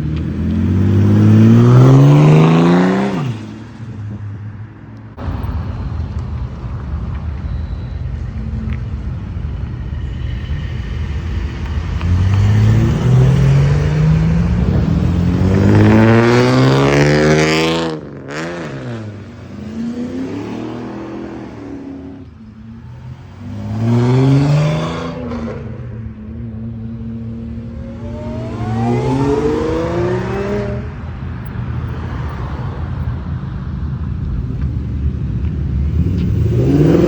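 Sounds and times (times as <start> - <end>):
car engine revving: 0.0 - 4.0, 5.2 - 31.5, 34.1 - 37.0
car passing by: 6.8 - 26.1, 26.8 - 33.6
another engine revving: 11.9 - 22.2, 27.6 - 30.9, 35.9 - 37.0.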